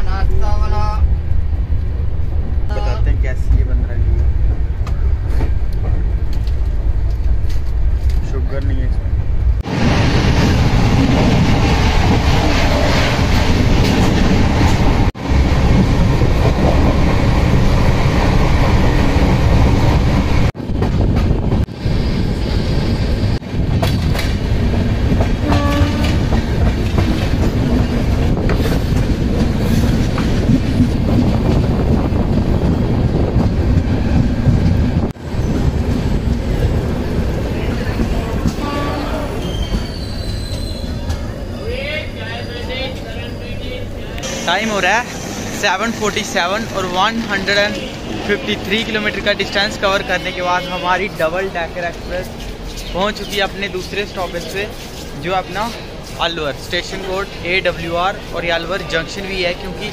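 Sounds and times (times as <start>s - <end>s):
train wheels clattering: 23.7s - 36.7s.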